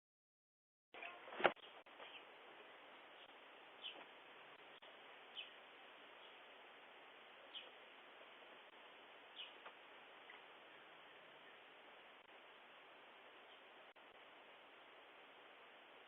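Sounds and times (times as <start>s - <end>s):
steady hiss: 1.4s - 16.0s
high bird chirps: 3.2s - 4.0s.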